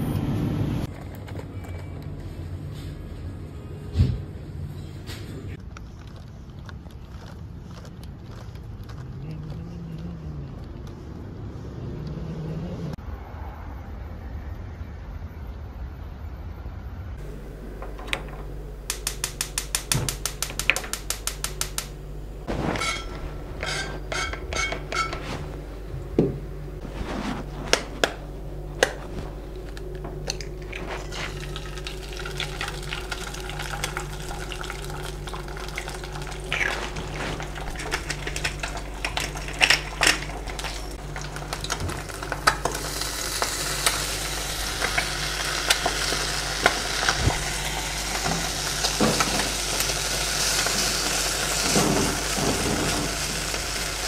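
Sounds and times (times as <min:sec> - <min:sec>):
gas hob igniter clicking: 0:17.8 - 0:22.0
pan and utensils knocking: 0:22.7 - 0:25.2
oil sizzling in frying pan: 0:31.0 - 0:54.0.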